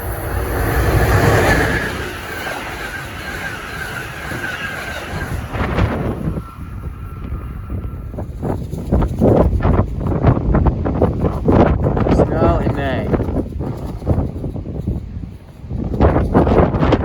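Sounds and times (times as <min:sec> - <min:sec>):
train rushing past: 0:00.0 - 0:09.6
wind buffeting microphone: 0:00.0 - 0:17.0.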